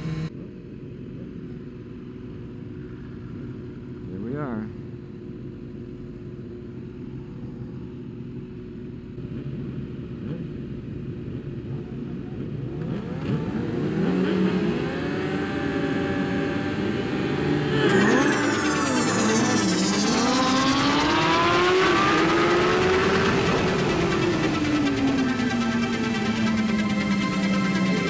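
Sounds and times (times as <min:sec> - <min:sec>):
racing motorcycle engines revving: 0:00.0 - 0:00.3, 0:09.1 - 0:28.0.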